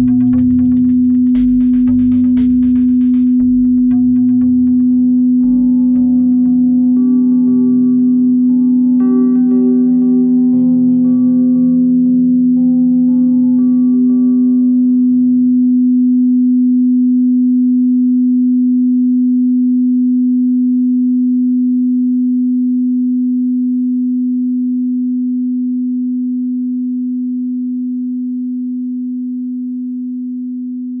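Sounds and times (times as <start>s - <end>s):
steady pure tone: 0.0s - 17.3s
ringing overtones: 4.5s - 15.8s.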